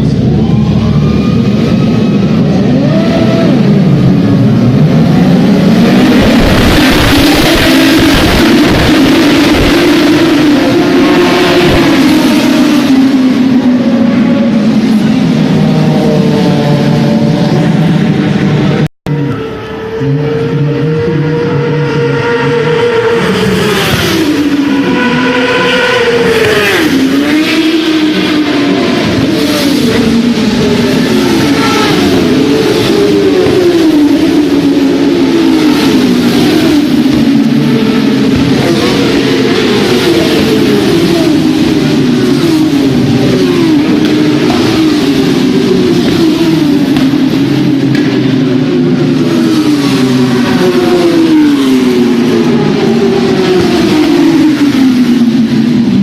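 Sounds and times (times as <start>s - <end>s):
motorbike engine at high revs: 0.0s - 56.0s.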